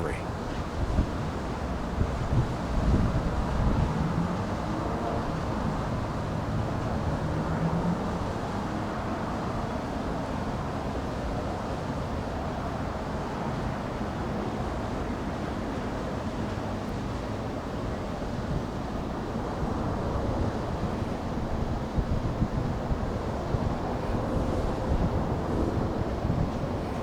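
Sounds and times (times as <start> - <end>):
wind noise on microphone: 0.7 - 4.7, 18.4 - 27.0.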